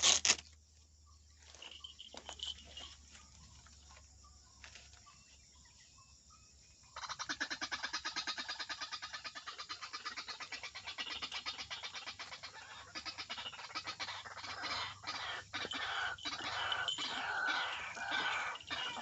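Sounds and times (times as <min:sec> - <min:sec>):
waterhen croaking calls: 0:07.0 - 0:19.0.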